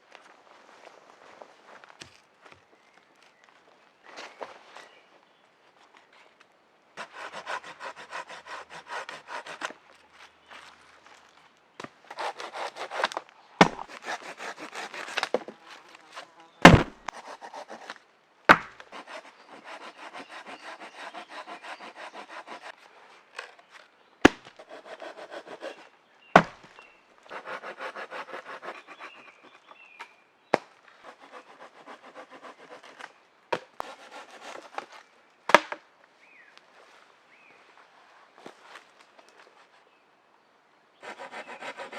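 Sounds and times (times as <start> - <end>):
hand saw cutting wood: 7.0 - 9.8, 12.1 - 22.8, 24.3 - 26.5, 27.3 - 29.6, 31.0 - 33.1, 33.8 - 34.9, 41.0 - 41.9
sharp wooden knocks: 12.6 - 15.4, 16.6 - 17.2, 18.5 - 19.1, 26.4 - 26.6.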